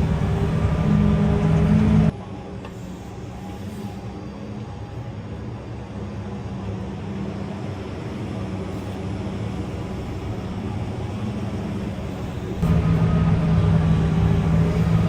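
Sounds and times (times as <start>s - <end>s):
engine droning: 0.0s - 2.8s, 7.8s - 15.0s.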